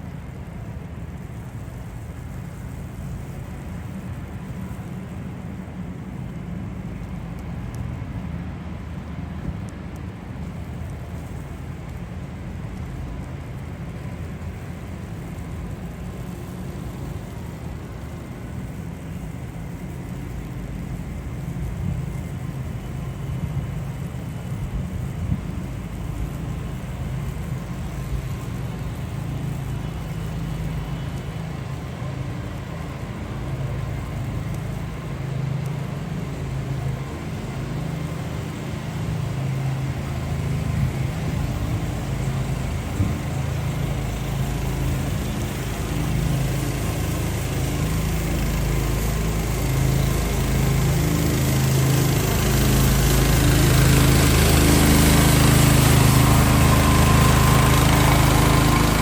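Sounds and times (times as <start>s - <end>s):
motor engine running: 12.9s - 59.0s.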